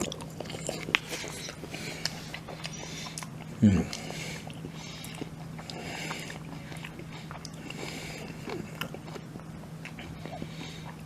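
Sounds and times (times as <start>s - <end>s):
wet mouth clicks: 0.0s - 7.8s
person chewing food: 0.0s - 11.0s
steady low hum: 0.0s - 11.0s.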